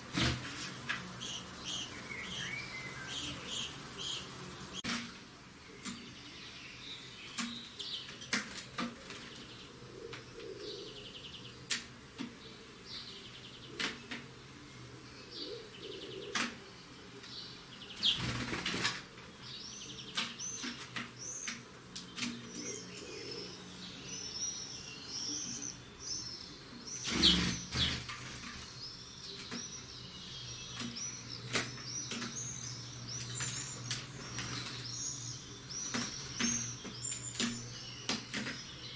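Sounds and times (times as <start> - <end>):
finches calling and twittering: 0.2 - 8.4, 12.4 - 38.9
wing flapping: 18.0 - 19.1, 27.0 - 28.7.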